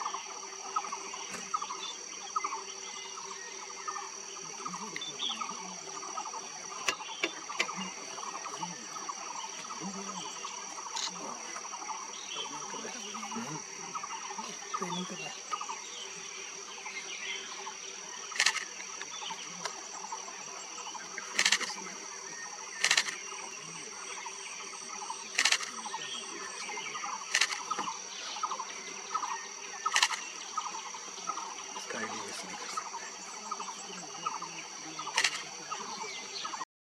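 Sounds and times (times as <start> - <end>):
high-pitched insect drone: 0.0 - 36.6
sharp loud clicks: 18.3 - 19.0, 21.3 - 21.8, 22.8 - 23.2, 25.3 - 25.8, 27.3 - 27.9, 29.9 - 30.3, 35.1 - 35.5.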